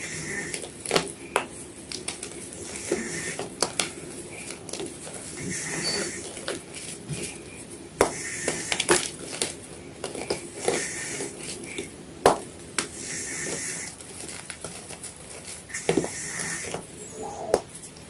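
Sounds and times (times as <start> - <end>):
chalk cracking: 8.0 - 18.0.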